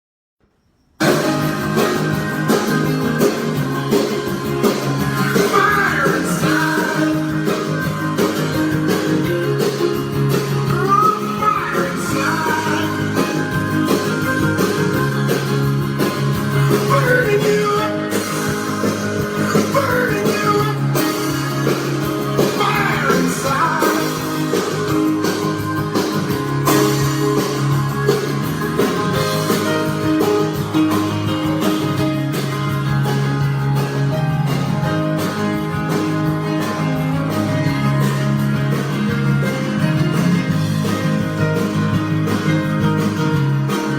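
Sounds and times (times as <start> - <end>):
guitar-led song with singing: 1.0 - 43.9.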